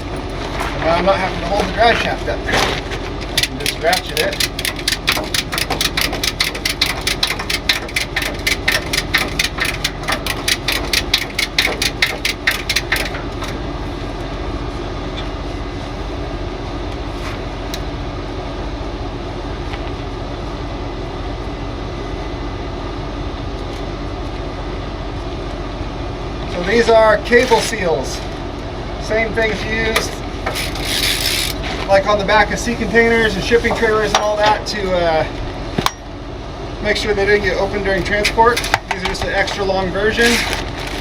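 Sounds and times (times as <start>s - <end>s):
truck engine idling: 0.0s - 41.0s
ratchet strap clicking: 3.3s - 13.6s, 30.5s - 31.7s, 38.3s - 38.8s, 40.2s - 41.0s.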